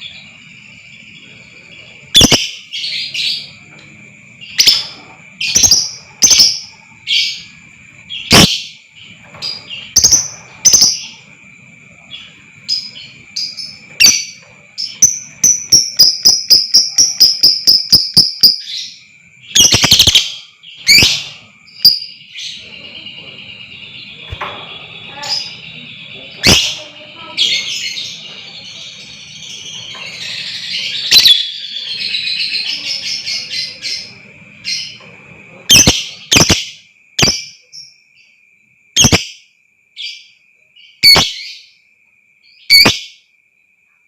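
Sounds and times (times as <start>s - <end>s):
lovebird chirping and trilling: 2.0s - 3.6s, 4.4s - 11.3s, 12.1s - 35.0s, 35.7s - 37.9s, 39.0s - 39.4s, 40.0s - 41.7s, 42.6s - 43.2s
faint steady high tone: 20.5s - 31.9s.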